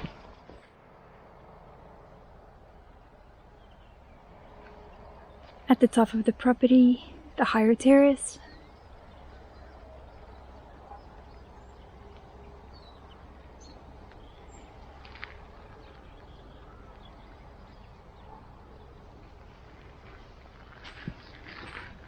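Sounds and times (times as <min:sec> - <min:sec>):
faint bird chirps: 0:08.1 - 0:14.8.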